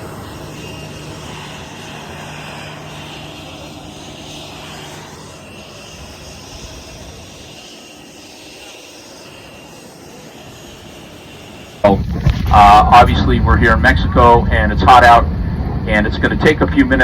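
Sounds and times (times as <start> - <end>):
airliner engine drone in cabin: 0.0 - 17.0
low hum: 0.0 - 17.0.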